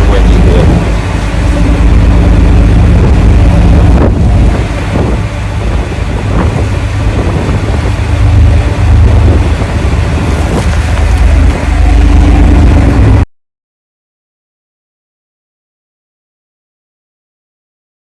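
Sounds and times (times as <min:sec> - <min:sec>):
wind buffeting microphone: 0:00.0 - 0:13.2
boat engine drone: 0:00.0 - 0:13.3.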